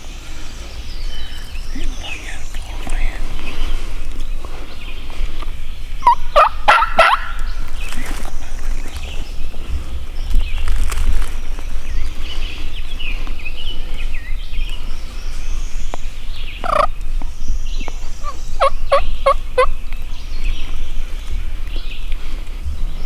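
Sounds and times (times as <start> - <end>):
wild turkey gobbling: 1.2 - 9.8, 16.6 - 17.1, 17.7 - 20.0.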